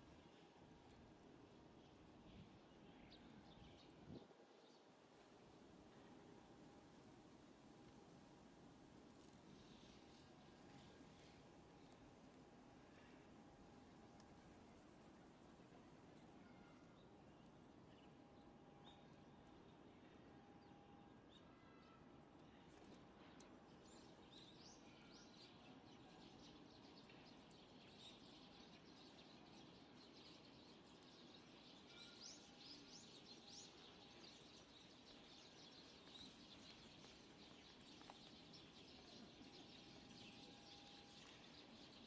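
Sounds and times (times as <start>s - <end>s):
small birds chirping: 8.9s - 42.0s.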